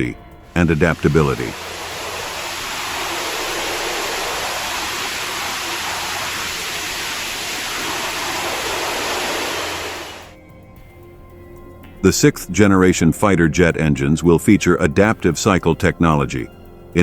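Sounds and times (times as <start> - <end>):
steady rushing noise: 0.5 - 10.4.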